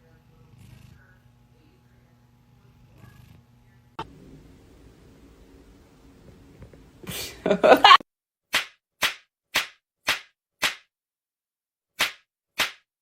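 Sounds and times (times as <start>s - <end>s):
sharp slapping smacks: 8.5s - 10.9s, 12.0s - 12.9s.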